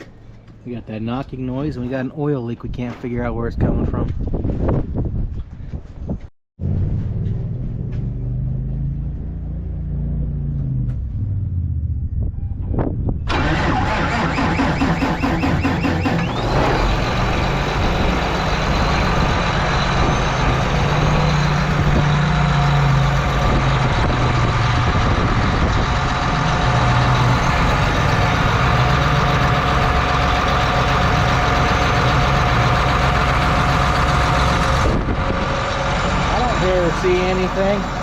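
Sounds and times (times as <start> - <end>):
engine idling: 13.3 - 38.0.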